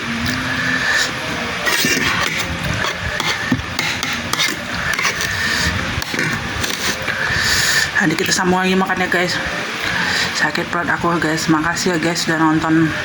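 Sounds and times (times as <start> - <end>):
high-pitched background hum: 0.0 - 13.0
utensils tapping and scraping dish: 1.7 - 5.4.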